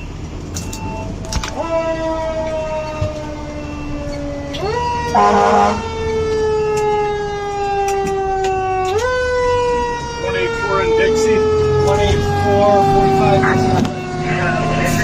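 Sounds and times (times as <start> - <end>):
fire engine siren wailing: 0.0 - 15.0
air horn blast: 5.1 - 5.9.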